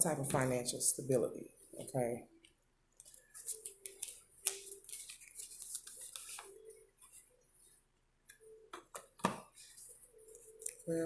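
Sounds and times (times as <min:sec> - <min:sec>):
cards being shuffled: 0:03.0 - 0:07.2.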